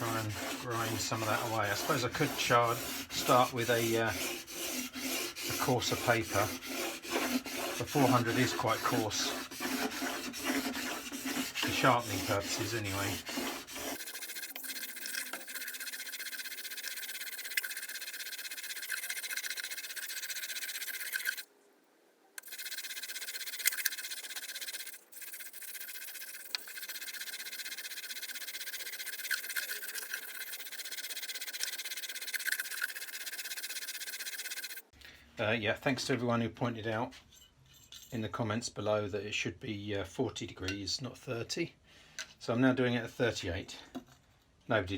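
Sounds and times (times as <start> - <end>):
plane blade rubbed on sandpaper: 0.0 - 21.4, 22.4 - 34.9.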